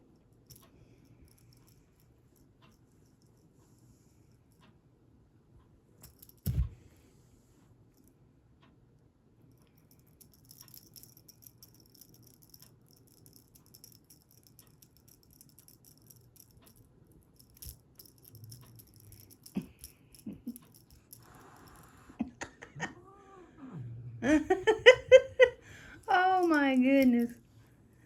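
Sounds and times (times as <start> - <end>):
cat toy rattling and jingling: 9.8 - 16.8, 17.4 - 22.0.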